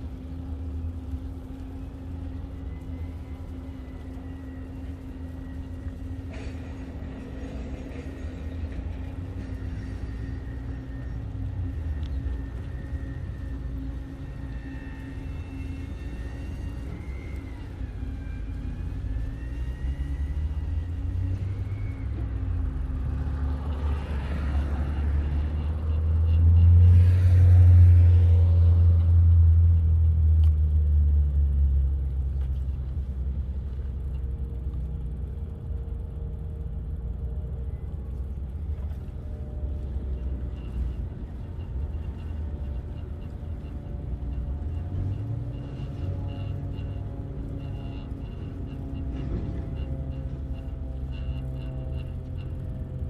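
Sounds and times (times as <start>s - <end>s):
vehicle passing by: 19.1s - 30.1s.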